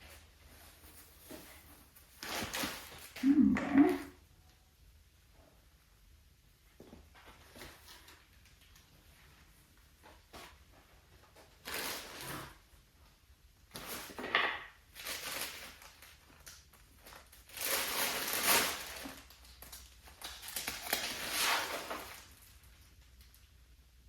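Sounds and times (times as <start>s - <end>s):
paper or plastic crinkling: 14.9s - 22.9s.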